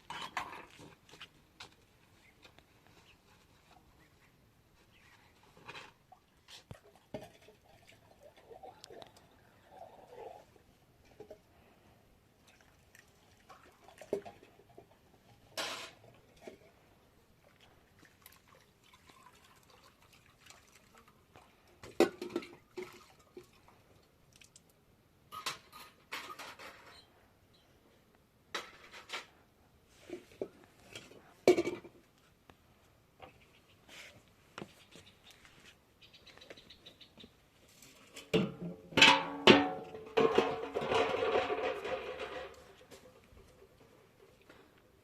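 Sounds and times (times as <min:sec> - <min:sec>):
dishes and utensils clinking: 0:38.3 - 0:42.8.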